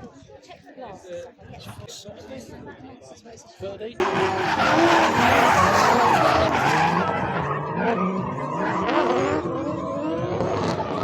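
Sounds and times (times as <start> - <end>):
tyres screeching: 4.0 - 9.6
car engine revving hard: 4.0 - 11.0.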